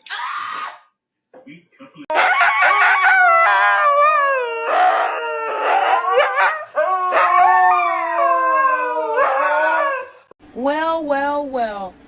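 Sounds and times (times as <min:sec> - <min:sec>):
dog howling and whining: 0:02.1 - 0:10.4.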